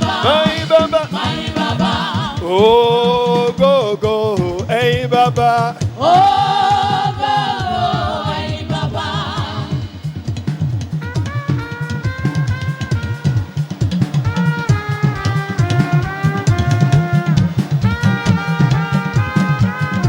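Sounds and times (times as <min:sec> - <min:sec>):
choir singing: 0:00.0 - 0:03.7, 0:05.8 - 0:10.5
drum kit beat: 0:00.0 - 0:20.0
gospel band playing: 0:00.0 - 0:20.0.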